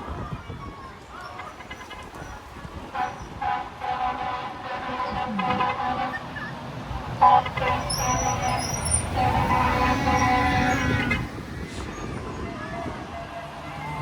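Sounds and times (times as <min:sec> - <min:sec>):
diesel engine rumble: 0:00.0 - 0:14.0
truck air horns blowing: 0:02.9 - 0:11.6.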